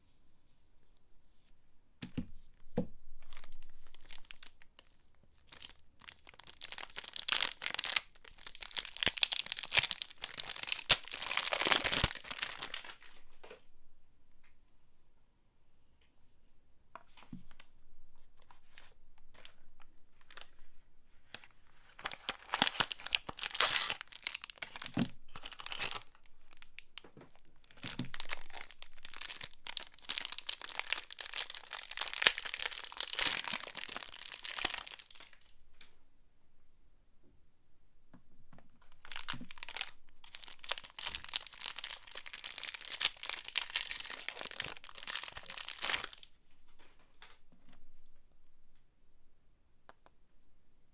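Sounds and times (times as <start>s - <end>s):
wrapper tearing and crinkling: 3.2s - 13.2s, 21.9s - 35.5s, 39.0s - 46.4s.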